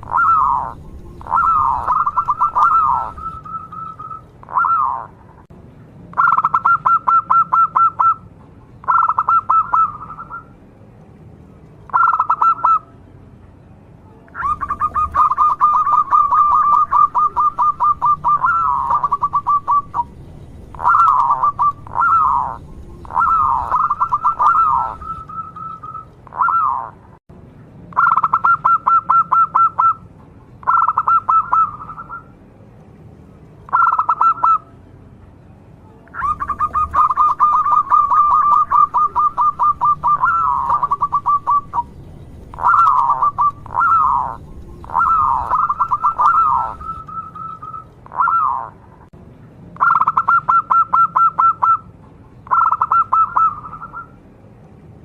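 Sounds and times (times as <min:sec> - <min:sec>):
dove cooing: 0:00.0 - 0:05.2, 0:06.2 - 0:08.2, 0:08.8 - 0:10.5, 0:11.9 - 0:12.8, 0:14.4 - 0:27.0, 0:30.6 - 0:32.3, 0:33.7 - 0:34.6, 0:36.1 - 0:48.8, 0:52.5 - 0:54.1.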